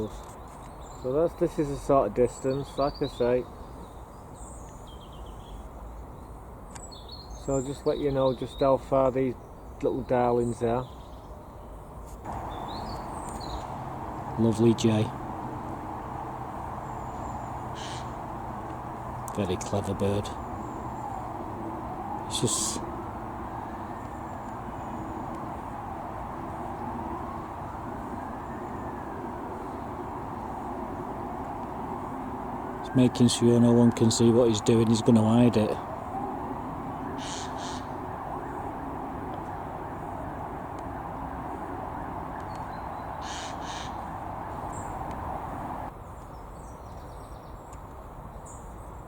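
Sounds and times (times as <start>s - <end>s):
distant traffic rumble: 0.0s - 49.0s
steady background noise: 11.7s - 46.5s
jay screeching: 17.6s - 18.3s, 37.1s - 38.0s.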